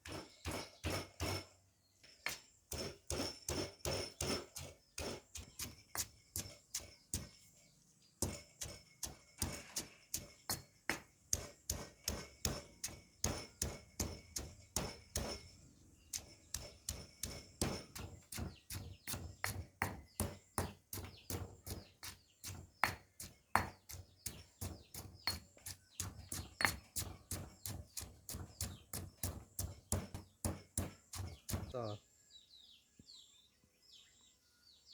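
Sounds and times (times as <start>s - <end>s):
knife chopping on cutting board: 23.6s - 23.9s, 29.0s - 31.7s.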